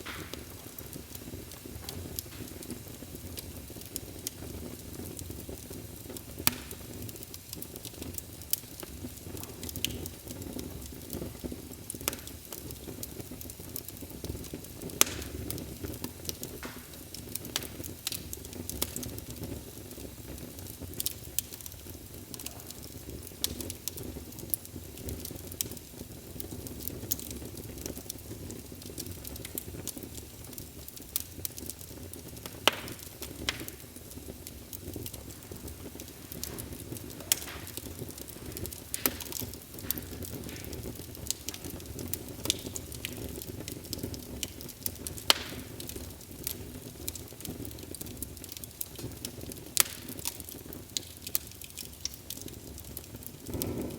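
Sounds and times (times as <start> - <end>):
wood fire crackling and popping: 0.0 - 53.9.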